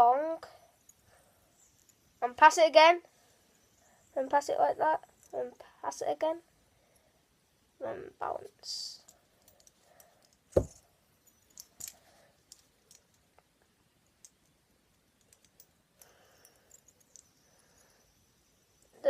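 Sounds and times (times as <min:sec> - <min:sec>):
sharp knocks: 0:10.6 - 0:10.8.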